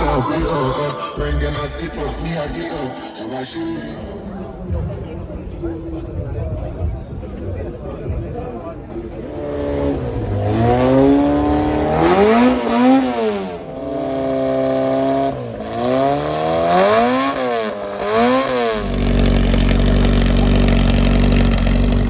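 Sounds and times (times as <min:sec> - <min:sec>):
engine revving: 0:09.1 - 0:22.0.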